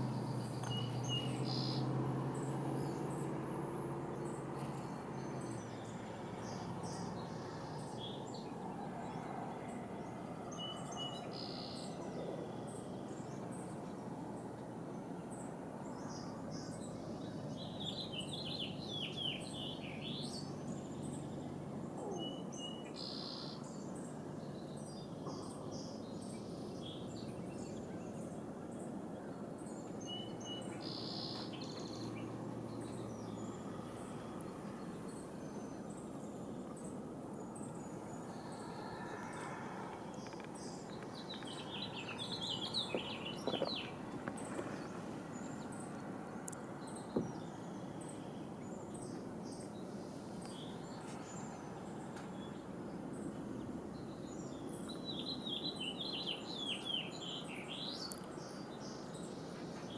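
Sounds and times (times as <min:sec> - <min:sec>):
wild birds chirping and calling: 0:00.0 - 0:14.6, 0:15.3 - 0:59.9
steady outdoor hiss: 0:00.0 - 0:59.9.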